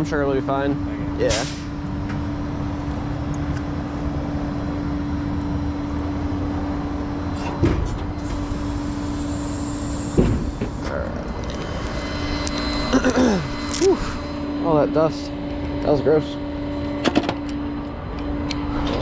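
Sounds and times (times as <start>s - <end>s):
hiss: 1.3s - 1.7s, 8.2s - 10.8s.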